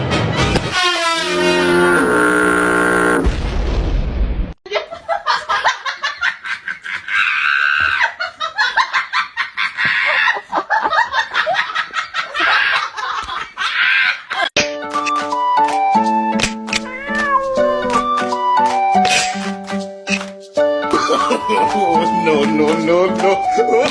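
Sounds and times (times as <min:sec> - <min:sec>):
music: 0:00.0 - 0:01.6, 0:14.6 - 0:23.9
hearty human laughter: 0:04.7 - 0:14.5, 0:20.9 - 0:22.1.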